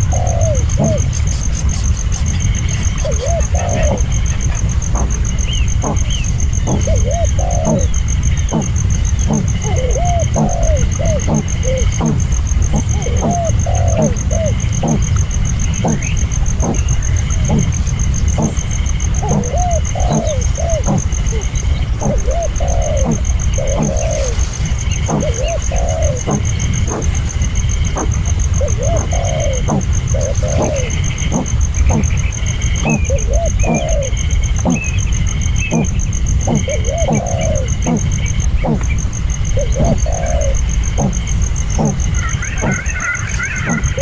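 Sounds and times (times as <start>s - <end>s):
bird cooing calls: 0.0s - 44.0s
faint chirps: 0.0s - 44.0s
fast high-pitched ticking: 3.9s - 7.0s, 7.6s - 33.9s
sharp knocks: 6.7s - 7.0s, 14.8s - 15.1s, 18.4s - 18.6s, 19.2s - 19.5s, 25.1s - 25.4s.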